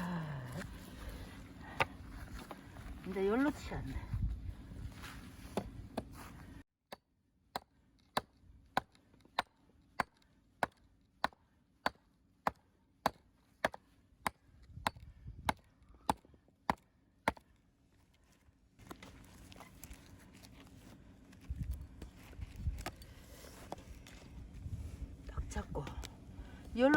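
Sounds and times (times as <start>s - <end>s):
axe chopping firewood: 6.9s - 17.6s.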